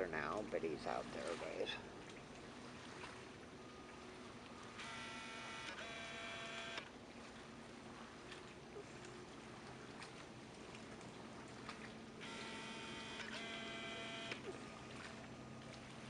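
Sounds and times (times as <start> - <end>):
camera zoom motor whining: 4.8 - 6.9, 12.2 - 14.5.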